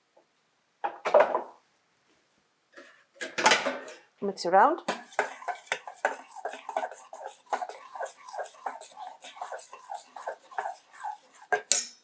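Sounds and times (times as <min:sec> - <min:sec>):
stirring chicken in marinade: 0:04.8 - 0:11.8.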